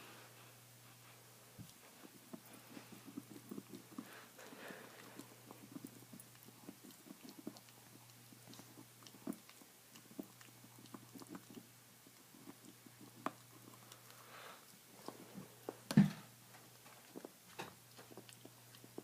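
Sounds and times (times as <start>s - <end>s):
dog chewing on a bone: 1.6s - 19.0s.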